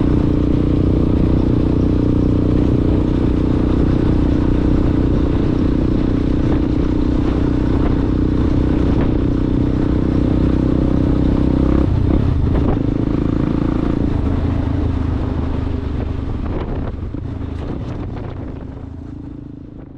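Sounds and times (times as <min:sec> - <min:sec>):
motorcycle engine running: 0:00.0 - 0:19.9.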